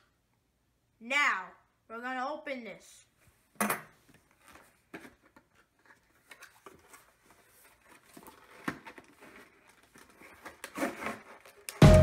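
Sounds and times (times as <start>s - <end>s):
cardboard box being opened: 5.9s - 11.7s.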